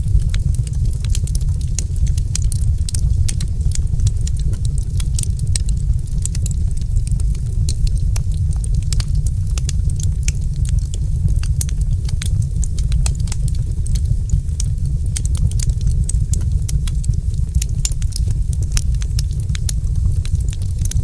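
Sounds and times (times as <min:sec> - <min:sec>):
deep fire rumble: 0:00.0 - 0:21.0
wood fire crackling: 0:00.0 - 0:21.0.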